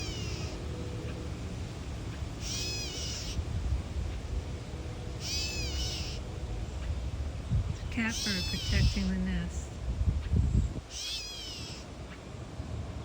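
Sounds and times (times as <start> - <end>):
bird mewing calls: 0.0 - 1.3, 2.0 - 7.0, 8.0 - 9.3, 10.9 - 12.2.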